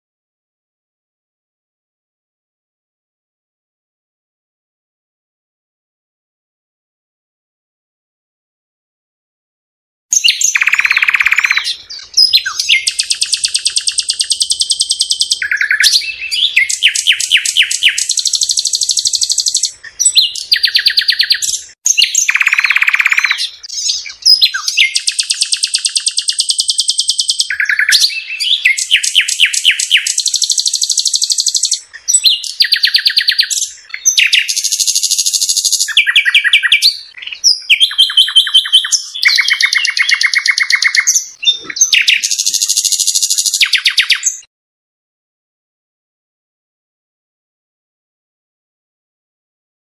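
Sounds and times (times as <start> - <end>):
songbird singing trills: 10.1 - 44.5.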